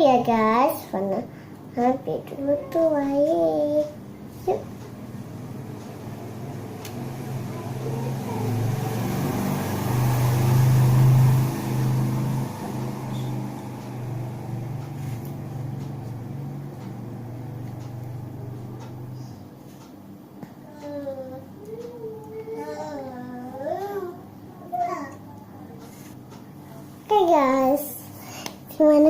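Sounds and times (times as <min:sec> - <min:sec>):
vehicle engine passing by: 0:05.1 - 0:19.4.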